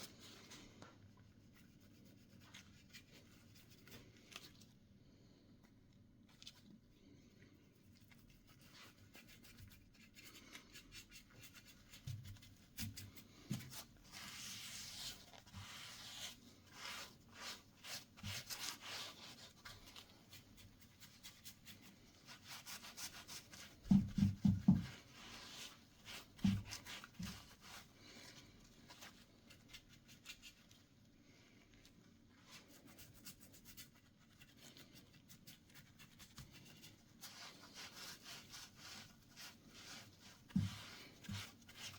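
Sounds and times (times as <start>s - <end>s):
rubbing and scratching on wood: 7.9s - 30.9s, 32.4s - 41.9s.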